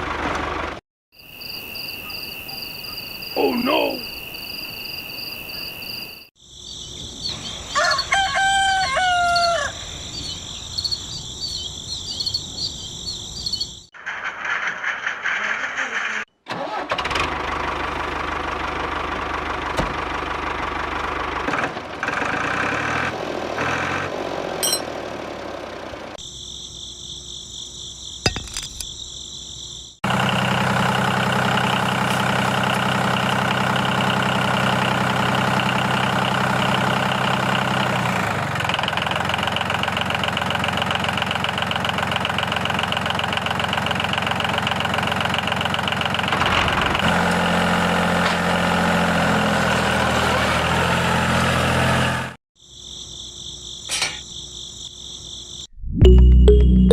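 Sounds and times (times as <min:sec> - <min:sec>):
tractor engine idling: 0:16.6 - 0:22.7, 0:30.1 - 0:46.4.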